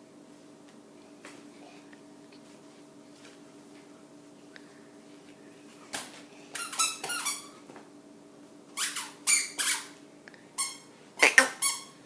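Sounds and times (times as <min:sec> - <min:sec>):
squeaky sandals squeaking: 0:06.6 - 0:07.5.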